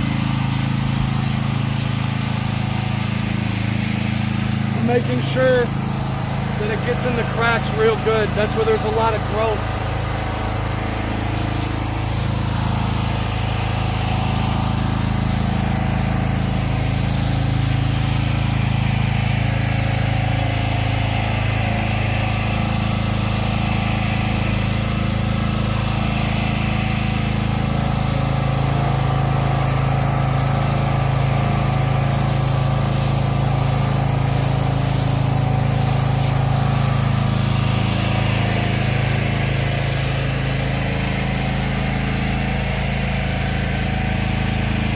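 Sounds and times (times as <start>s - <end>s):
hiss of water spray: 0.0s - 44.9s
pressure washer engine running: 0.0s - 44.9s.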